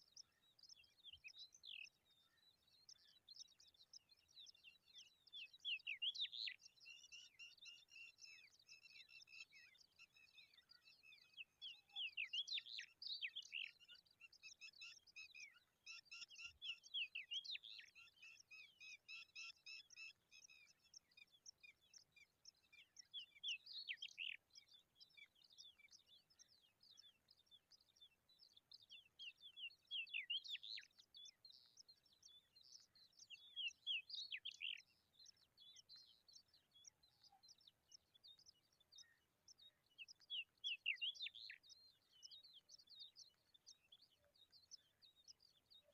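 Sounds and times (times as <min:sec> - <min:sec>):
birds chirping: 0:00.0 - 0:45.9.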